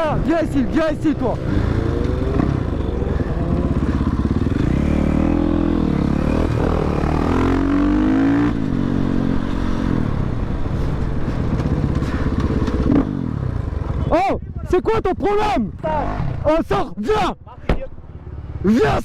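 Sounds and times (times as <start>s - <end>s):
motorcycle engine revving: 0.6s - 16.6s.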